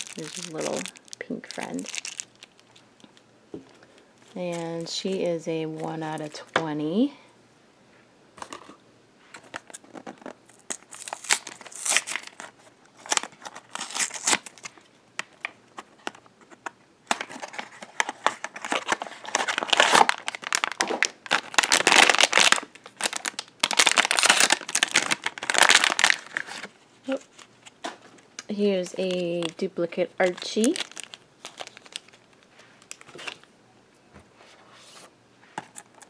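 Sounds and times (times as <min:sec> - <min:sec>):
packaging crinkling and tearing: 0:00.0 - 0:03.2, 0:09.4 - 0:16.2, 0:17.1 - 0:33.5.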